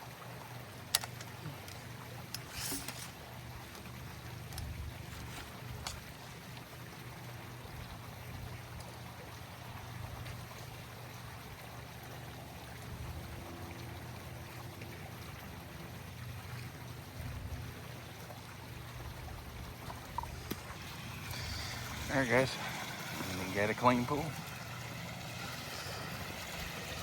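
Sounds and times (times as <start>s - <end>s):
running water: 0.0s - 27.0s.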